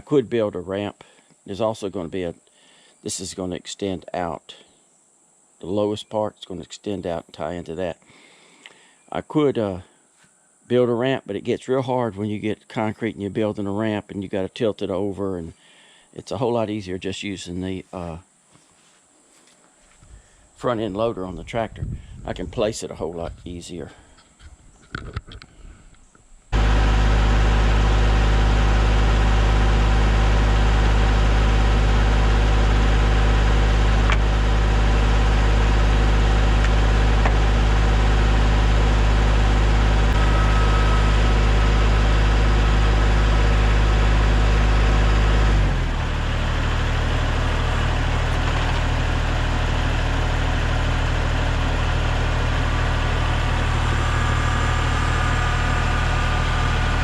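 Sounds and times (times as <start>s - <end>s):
tractor engine running: 26.5s - 57.0s.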